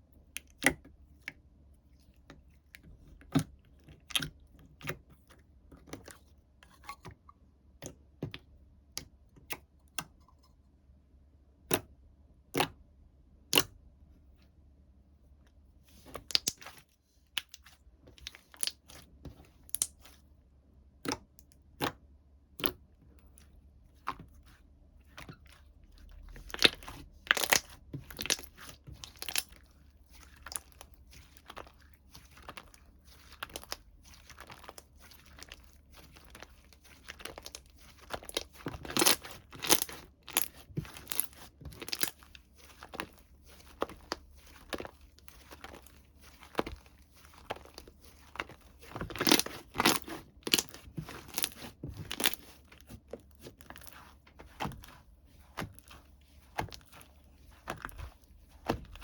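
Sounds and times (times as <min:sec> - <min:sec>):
slime crinkling and crunching: 0:16.0 - 0:20.2, 0:24.0 - 0:59.0.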